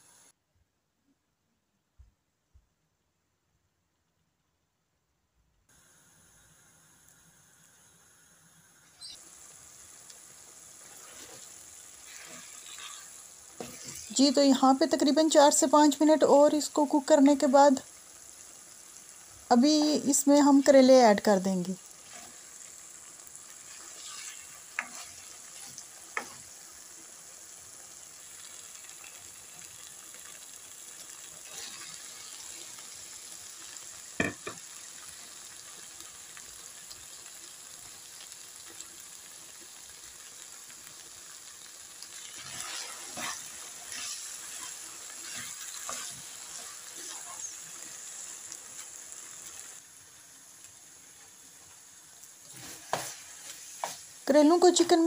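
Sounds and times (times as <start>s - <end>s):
food sizzling in a wok: 0.0s - 0.4s, 5.7s - 55.0s
spatula scraping a pan: 10.8s - 14.4s, 22.0s - 22.6s, 23.6s - 26.5s, 31.4s - 32.6s, 42.1s - 48.9s, 52.4s - 54.1s.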